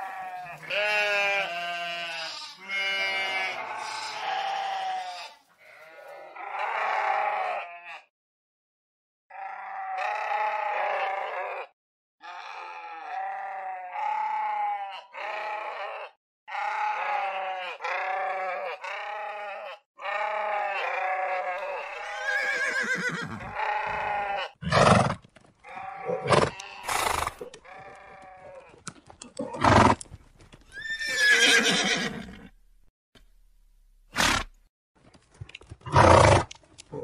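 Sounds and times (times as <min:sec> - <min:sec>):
sheep bleating: 0:00.0 - 0:08.1, 0:09.3 - 0:24.8, 0:25.6 - 0:28.8
horse whinny: 0:15.2 - 0:28.7, 0:29.4 - 0:30.0, 0:30.7 - 0:32.6, 0:35.9 - 0:36.5
horses snorting: 0:22.2 - 0:24.0, 0:24.6 - 0:32.5, 0:34.1 - 0:34.6, 0:35.4 - 0:37.0.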